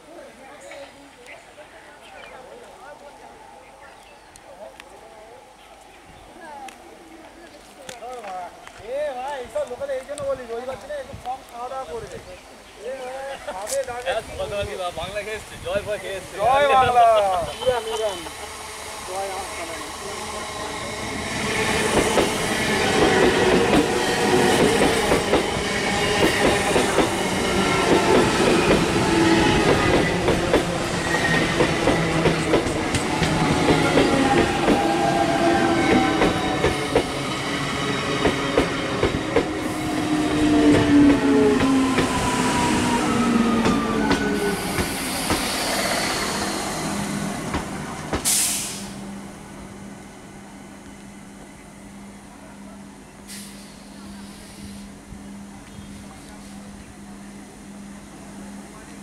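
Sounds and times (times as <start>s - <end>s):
train whining tones: 16.3s - 59.0s.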